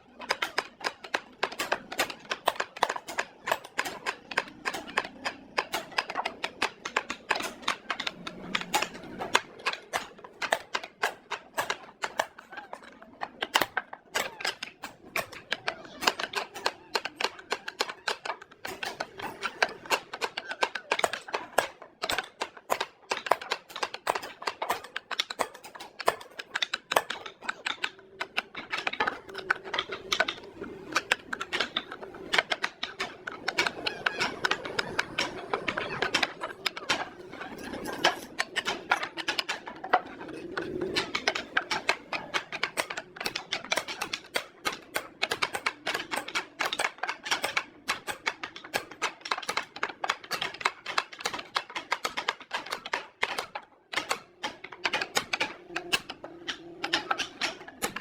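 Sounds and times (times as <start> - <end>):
rapid irregular tapping and clicking: 0.0 - 58.0.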